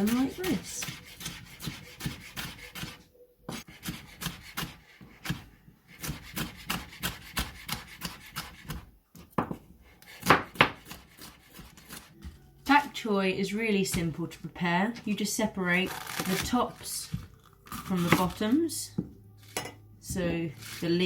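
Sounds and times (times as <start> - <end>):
knife chopping on a board: 0.0 - 12.4.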